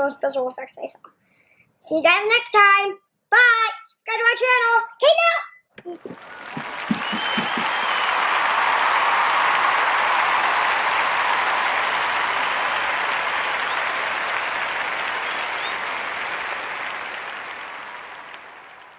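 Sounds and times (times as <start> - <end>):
crowd applause: 5.9 - 18.9.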